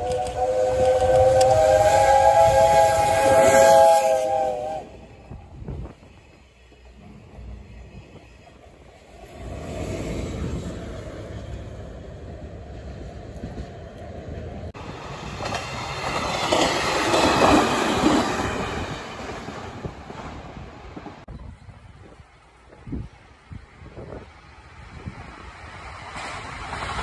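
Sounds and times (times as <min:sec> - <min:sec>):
steam locomotive whistle: 0:00.0 - 0:05.4
diesel locomotive engine: 0:00.0 - 0:27.0
electric train wheels on rails: 0:00.0 - 0:27.0.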